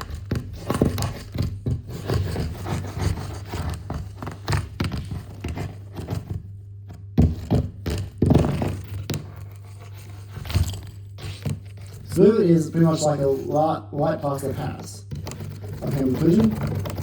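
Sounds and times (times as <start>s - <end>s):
plaster being chipped and broken: 15.1s - 17.0s.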